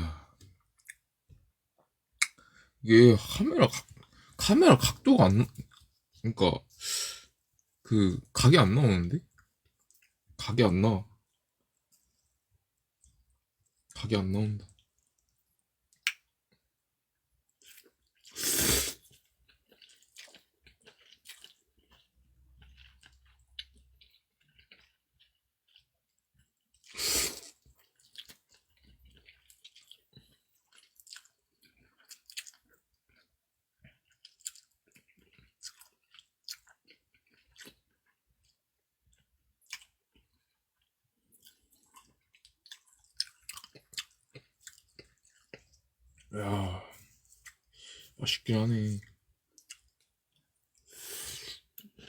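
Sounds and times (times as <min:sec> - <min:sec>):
person chewing food: 0:00.1 - 0:01.1, 0:09.3 - 0:10.2, 0:17.5 - 0:48.2, 0:49.1 - 0:52.0.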